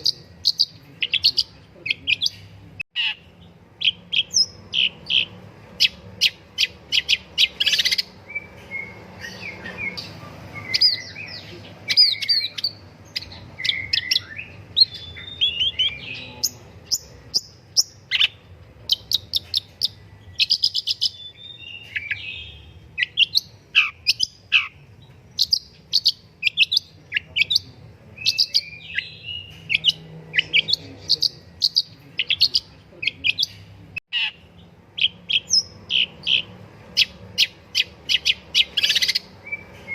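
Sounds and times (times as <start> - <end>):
bird song chirps and trills: 0.0 - 39.9.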